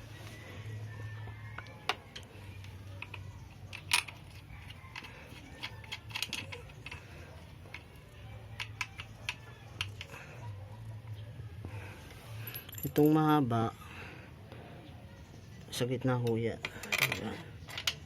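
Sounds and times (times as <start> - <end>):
metallic clicks of bolts and tool: 2.1 - 7.0.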